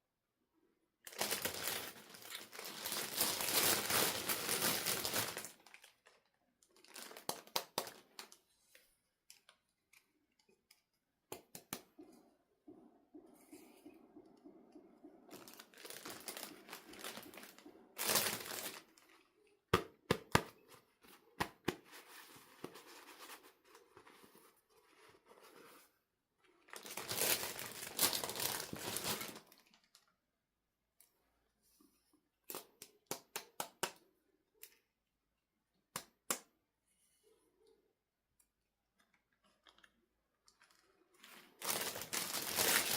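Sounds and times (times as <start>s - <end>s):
packaging tearing and crinkling: 1.1s - 6.1s, 15.4s - 18.9s, 26.8s - 29.6s, 41.6s - 42.9s.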